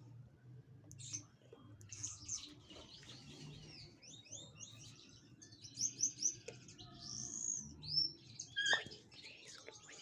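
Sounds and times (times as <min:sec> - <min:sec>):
small birds chirping: 0:00.9 - 0:10.0.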